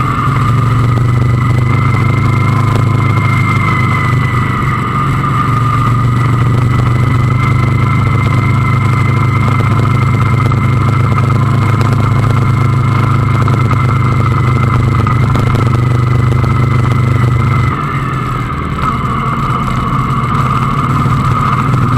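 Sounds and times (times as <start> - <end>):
motorcycle engine running: 0.0 - 21.9.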